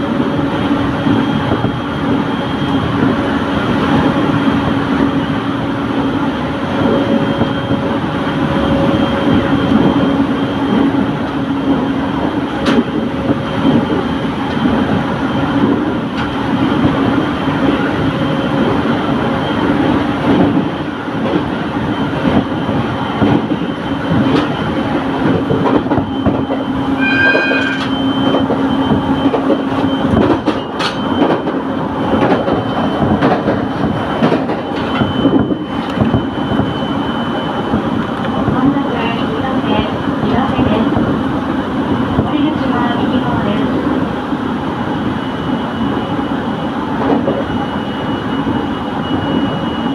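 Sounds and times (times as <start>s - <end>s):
high pulsing ringing tone: 0.0s - 25.2s, 25.8s - 49.9s
train wheels rumbling on rails: 0.0s - 49.9s.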